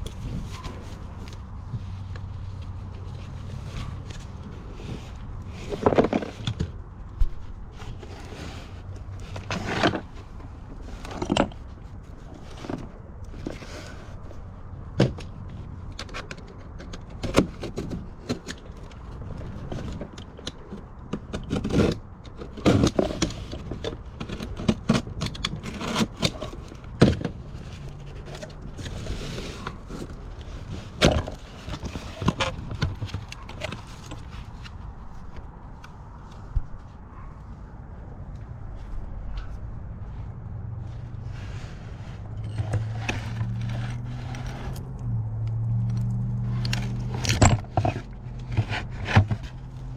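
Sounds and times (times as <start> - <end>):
low steady rumble: 0.0 - 49.9
rustling: 22.7 - 49.9.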